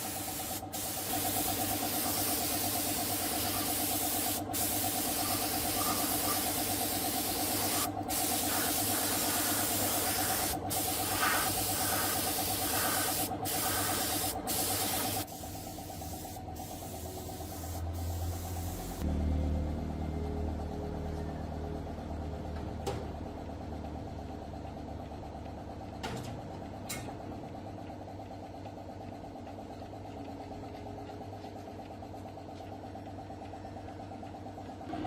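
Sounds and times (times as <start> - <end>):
motor running: 0.0 - 19.0
spray gun hiss: 0.0 - 19.0.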